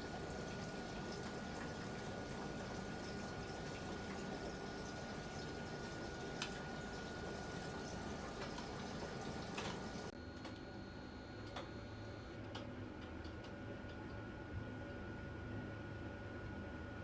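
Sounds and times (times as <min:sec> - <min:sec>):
washing machine clicks: 0:00.0 - 0:10.1
water sloshing in washing machine: 0:00.0 - 0:10.1
washing machine hum: 0:00.0 - 0:10.2.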